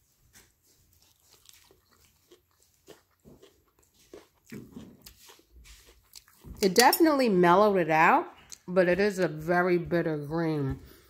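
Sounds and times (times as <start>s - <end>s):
faint chewing: 0.3s - 7.0s.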